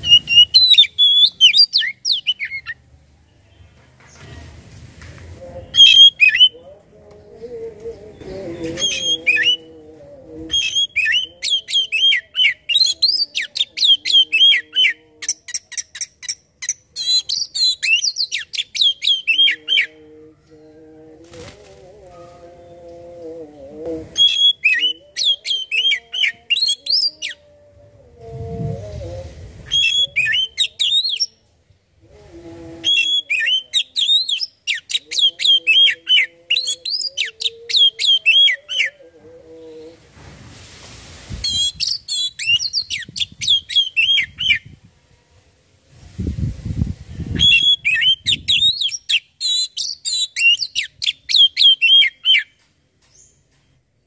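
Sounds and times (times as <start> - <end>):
bird singing whistled phrases: 41.4 - 44.6.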